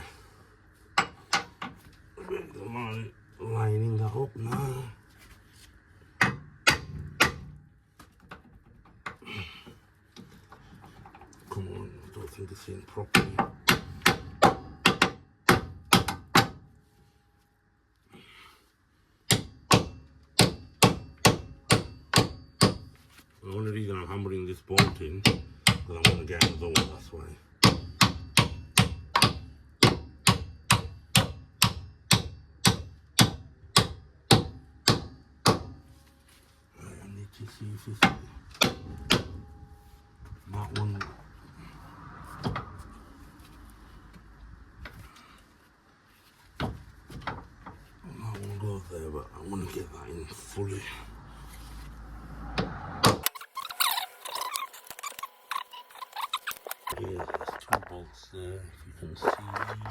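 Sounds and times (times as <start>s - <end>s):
hammer striking metal bolt: 6.2s - 7.6s, 27.6s - 35.8s, 38.0s - 39.5s
hammer striking steel bolt: 38.0s - 39.5s.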